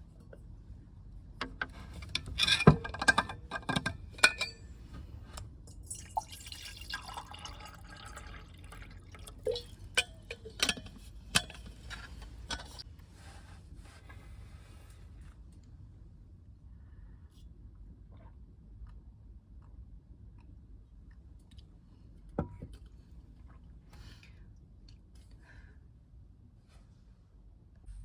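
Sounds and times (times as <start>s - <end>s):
liquid sounds: 5.8s - 10.6s.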